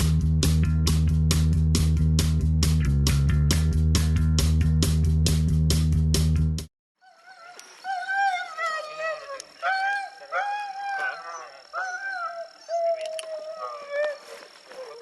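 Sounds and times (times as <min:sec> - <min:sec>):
dogs howling and yelping: 0:07.0 - 0:15.0.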